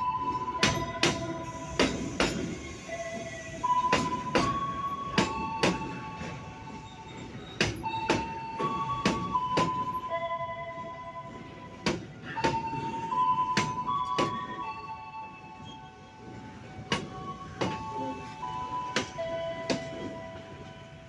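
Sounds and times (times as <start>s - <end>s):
train wheels clacking over rail joint: 0.6s - 10.0s, 11.8s - 14.6s, 16.9s - 18.1s.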